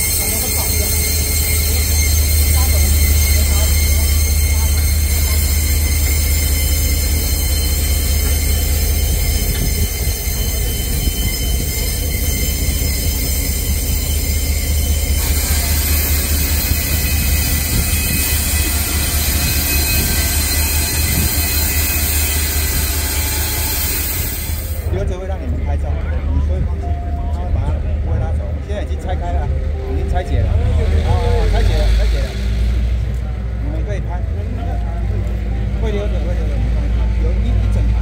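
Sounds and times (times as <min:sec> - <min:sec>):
high whining tones: 0:00.0 - 0:24.9
train rumble: 0:00.0 - 0:38.0.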